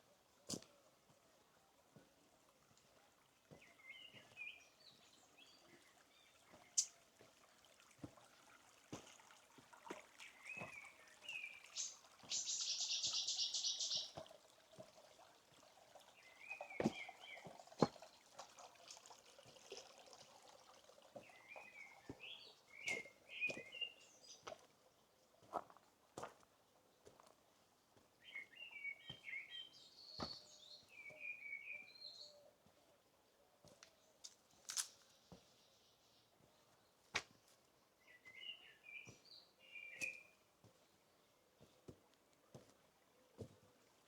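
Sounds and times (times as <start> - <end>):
birds chirping: 3.5 - 7.0, 10.2 - 14.2, 16.1 - 17.7, 21.2 - 24.6, 28.2 - 37.0, 38.0 - 41.8.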